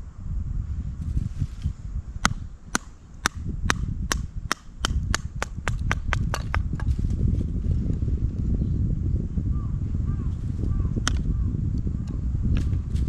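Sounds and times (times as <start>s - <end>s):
sharp knocks: 2.2s - 6.9s.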